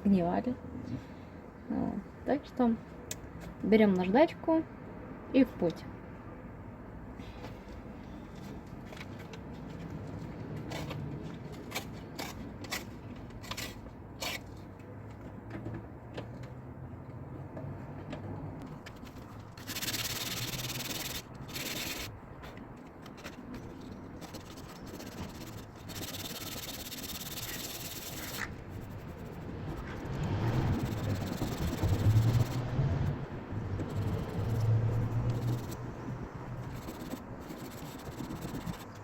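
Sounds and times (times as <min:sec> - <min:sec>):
sandpaper rasping on metal: 0:19.0 - 0:22.1, 0:24.2 - 0:32.9, 0:33.8 - 0:35.9, 0:36.6 - 0:39.0.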